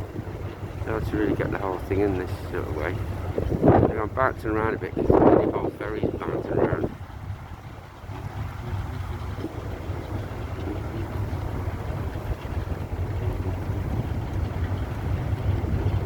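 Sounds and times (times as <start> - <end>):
ferry low rumble: 0.0 - 16.0.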